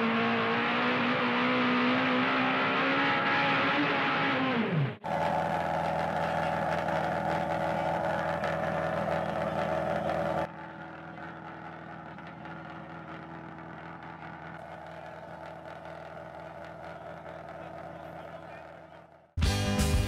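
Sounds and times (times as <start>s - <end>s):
car engine humming: 0.0s - 19.4s.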